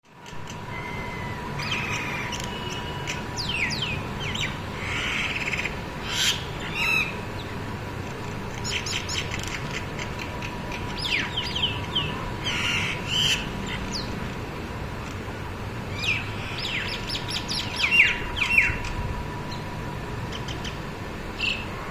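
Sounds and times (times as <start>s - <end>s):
birds chirping and squawking: 0.2s - 7.5s, 8.6s - 14.2s, 15.9s - 19.0s.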